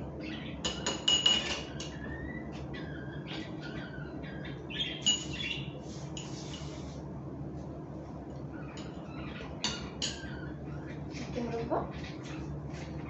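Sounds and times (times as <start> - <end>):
steady low hum: 0.0 - 13.0
small bird chirping: 1.7 - 5.8.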